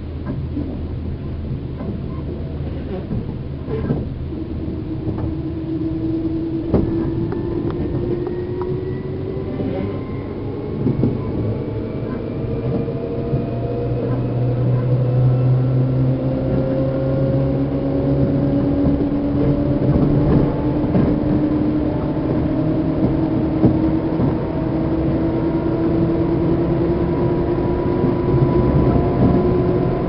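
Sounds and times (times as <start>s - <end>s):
low hum: 0.0s - 30.0s
train motor and gear whine: 0.0s - 30.0s
wheels knocking on rail joints: 16.4s - 26.4s.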